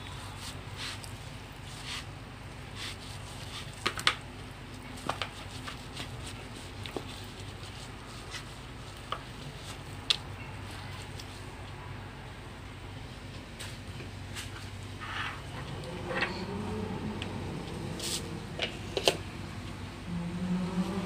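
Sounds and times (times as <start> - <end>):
low steady hum: 4.2 - 21.0.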